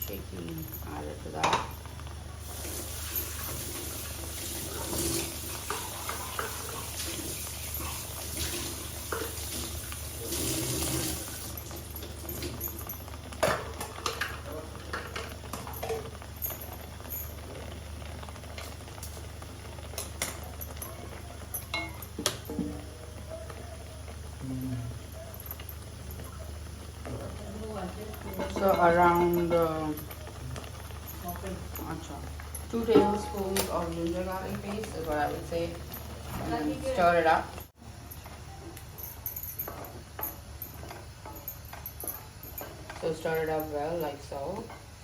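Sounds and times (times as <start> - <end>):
water poured into hot pan: 2.0 - 22.6.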